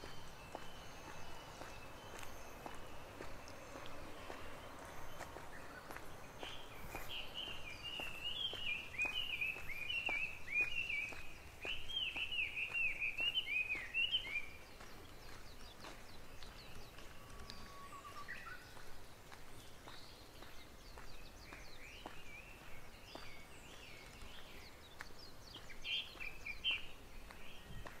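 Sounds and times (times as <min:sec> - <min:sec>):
songbird whistling: 0:00.0 - 0:18.9
footsteps on a path: 0:00.0 - 0:28.0.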